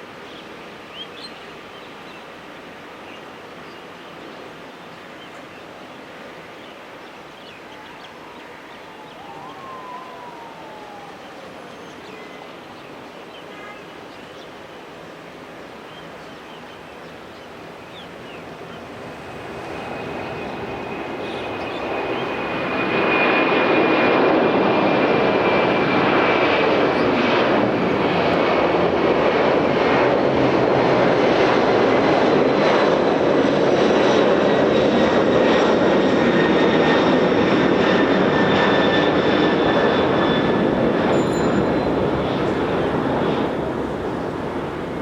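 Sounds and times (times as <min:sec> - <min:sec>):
aircraft engines running loud: 0:03.3 - 0:45.0
high engine whine: 0:07.6 - 0:12.8, 0:37.3 - 0:45.0.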